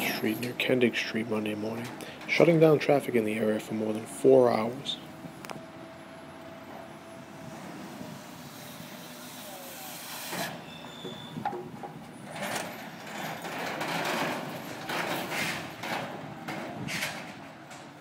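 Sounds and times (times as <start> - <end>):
rumbling clattering noise: 11.3 - 18.0.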